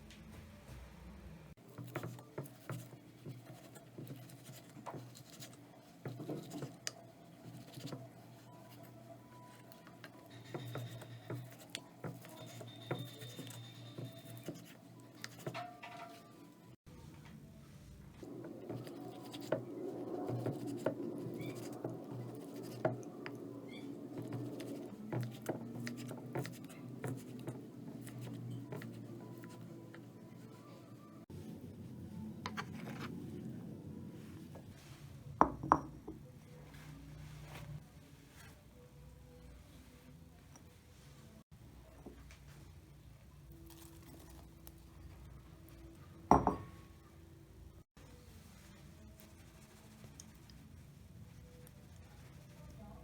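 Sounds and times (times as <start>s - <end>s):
kitchen utensils scraping and tapping: 1.6s - 16.7s, 18.2s - 31.0s
hands clicking and scratching objects: 18.2s - 30.5s.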